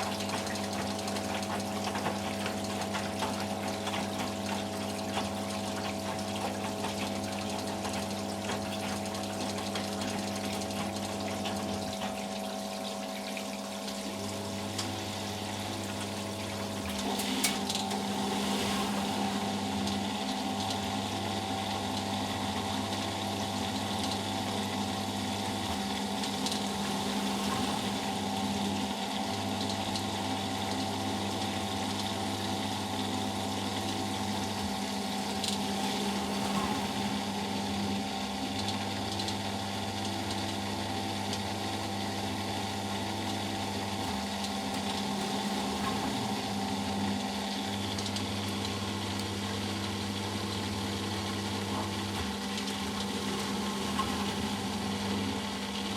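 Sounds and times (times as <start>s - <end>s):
motor hum: 0.0s - 55.9s
washing machine drain pump humming: 0.0s - 55.9s
washing machine click: 14.5s - 21.0s.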